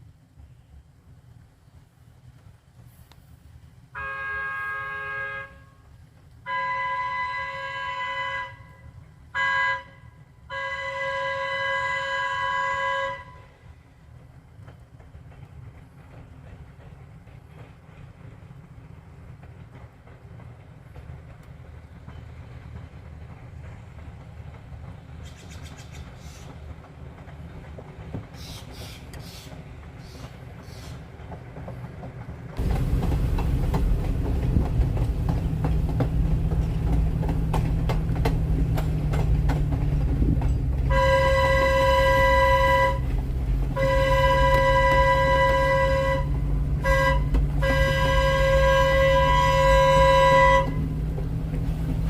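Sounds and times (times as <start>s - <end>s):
train rumbling on rails: 0.0s - 52.0s
train horn blasts: 3.9s - 13.7s, 40.6s - 51.2s.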